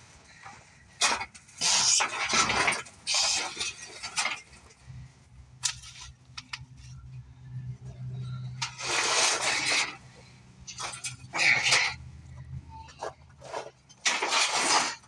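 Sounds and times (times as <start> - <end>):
metal clattering and scraping: 0.0 - 15.0.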